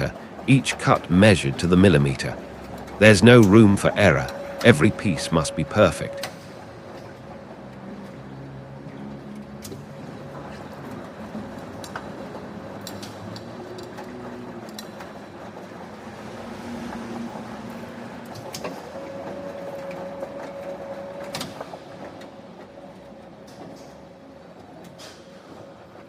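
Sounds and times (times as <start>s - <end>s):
held machine tones: 0.0s - 6.7s
factory machinery humming: 0.0s - 26.0s.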